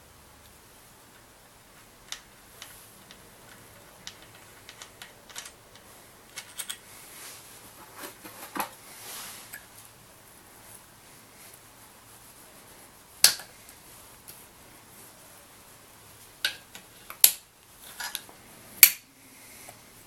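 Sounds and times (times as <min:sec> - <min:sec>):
metallic clicks of hand tools: 0:16.4 - 0:19.0.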